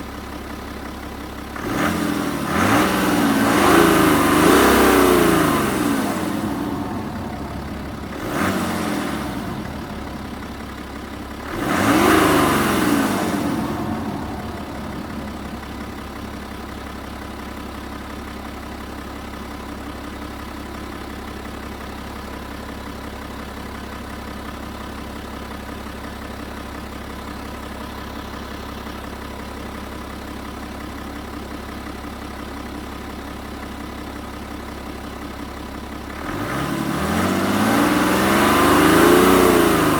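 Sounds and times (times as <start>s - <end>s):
diesel engine idling: 0.0s - 39.9s
diesel engine revving: 1.3s - 20.2s, 34.3s - 39.9s.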